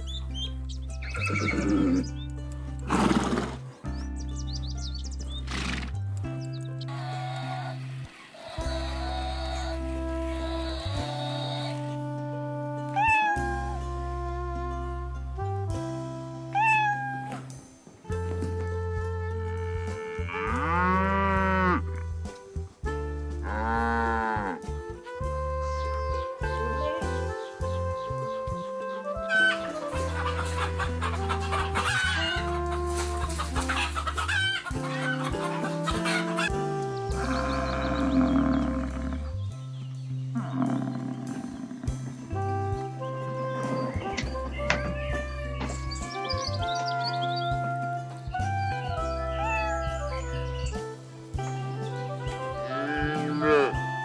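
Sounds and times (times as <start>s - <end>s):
background music: 0.0s - 54.0s
horse neighing: 1.0s - 2.1s, 6.9s - 12.0s, 13.0s - 13.9s, 16.6s - 17.4s, 37.2s - 39.2s
cow mooing: 8.4s - 12.3s, 36.5s - 39.3s, 52.6s - 54.0s.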